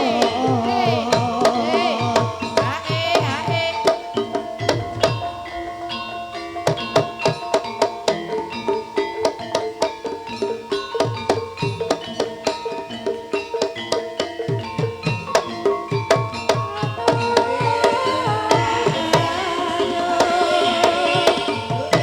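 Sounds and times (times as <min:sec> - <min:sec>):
hand drum strokes: 0:00.0 - 0:22.0
metal-keyed percussion melody: 0:00.0 - 0:22.0.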